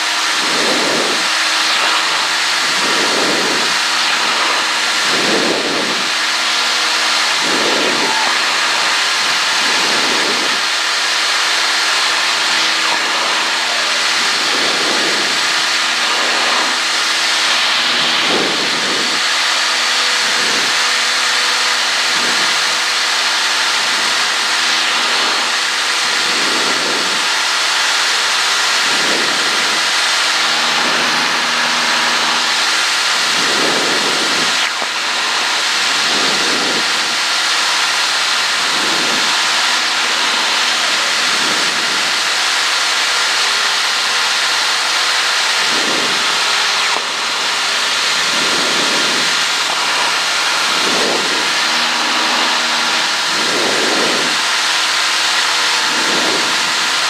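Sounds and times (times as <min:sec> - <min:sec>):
airplane engine and propeller droning: 0:00.0 - 0:57.0
heavy wind noise: 0:00.0 - 0:57.0.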